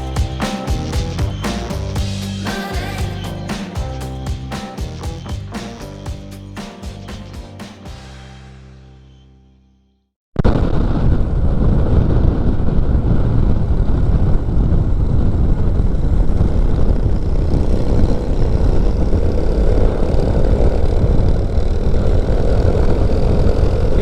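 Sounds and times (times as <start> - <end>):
motorcycle engine running: 0.0 - 8.3, 16.5 - 24.0
wind rumble on microphone: 10.6 - 24.0.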